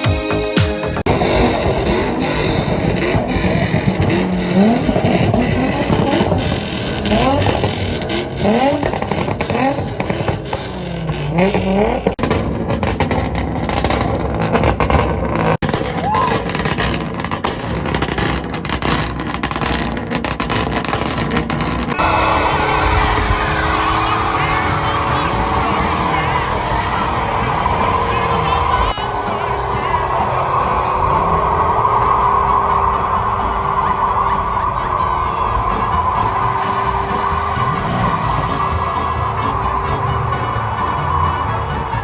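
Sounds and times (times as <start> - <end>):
car engine revving: 0.8 - 42.0.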